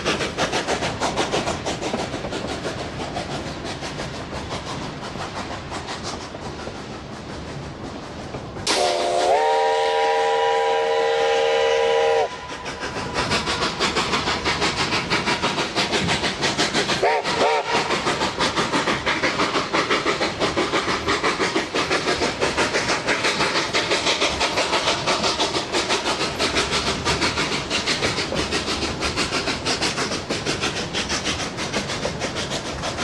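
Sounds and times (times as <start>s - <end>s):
steam locomotive exhaust chuffs: 0.0s - 33.0s
steam locomotive chime whistle: 8.7s - 12.6s, 17.0s - 17.8s.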